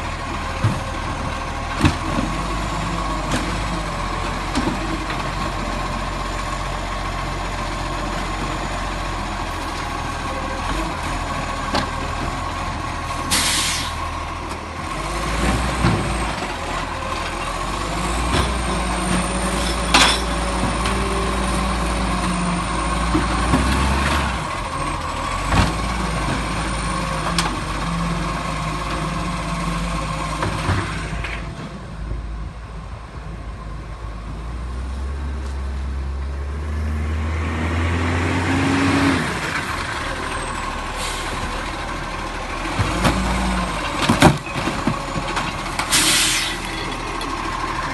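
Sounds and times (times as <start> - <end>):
diesel engine running: 0.0 - 47.9
air brake hiss: 13.3 - 14.0, 41.0 - 41.4, 45.9 - 46.6.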